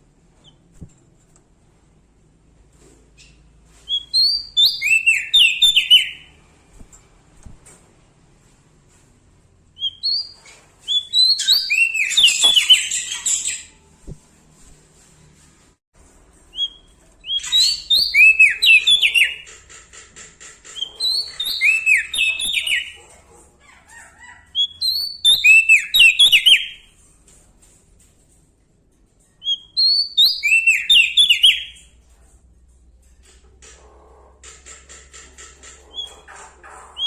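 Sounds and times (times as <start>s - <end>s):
bird singing whistled notes: 3.9s - 6.3s, 9.8s - 13.7s, 16.5s - 19.4s, 20.8s - 23.0s, 24.6s - 26.8s, 29.4s - 31.8s.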